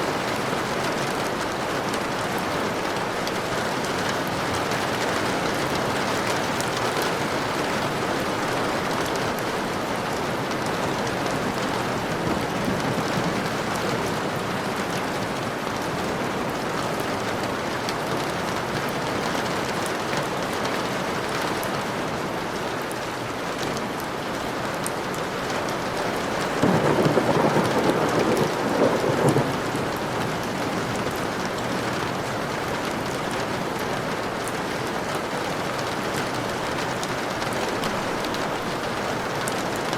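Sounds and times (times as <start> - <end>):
low rain burst: 0.0 - 18.8, 23.9 - 39.9
heavy rain hissing: 25.4 - 34.3.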